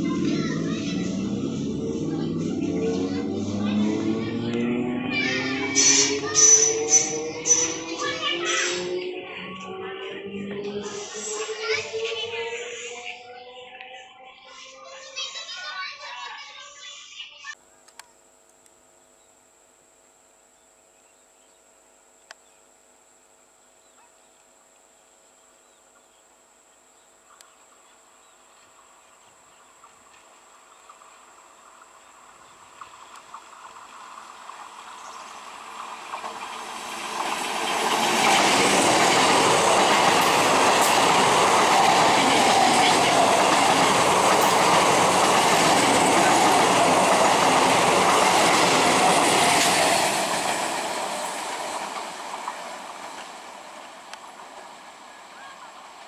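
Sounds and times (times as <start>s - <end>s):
train passing close by: 0.0s - 15.5s, 28.2s - 56.0s
wheel-on-rail noise: 0.0s - 17.5s, 26.9s - 56.0s.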